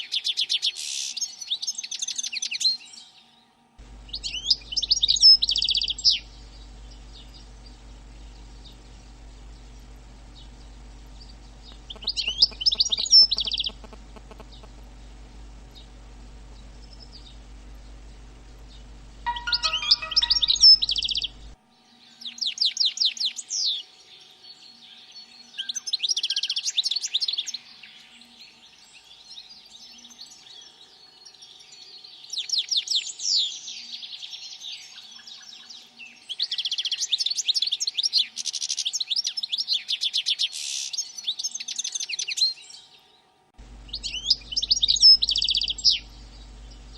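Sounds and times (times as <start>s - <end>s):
low steady hum: 3.8s - 21.6s, 43.6s - 46.9s
songbird trilling: 3.9s - 15.0s, 19.3s - 21.6s, 43.9s - 46.9s.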